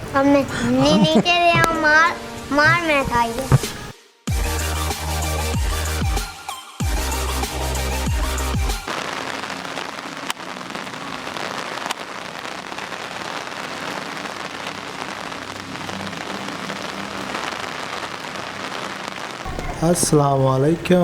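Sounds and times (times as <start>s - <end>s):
steady rain falling: 0.0s - 3.9s, 7.1s - 21.0s
sharp taps: 2.7s - 3.8s.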